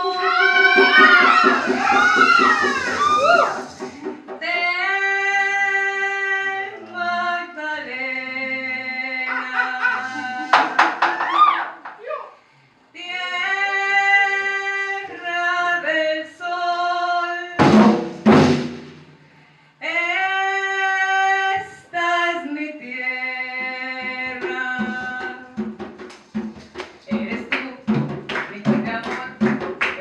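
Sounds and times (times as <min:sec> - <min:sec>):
loud drum strokes: 0:00.0 - 0:05.0, 0:17.6 - 0:19.4.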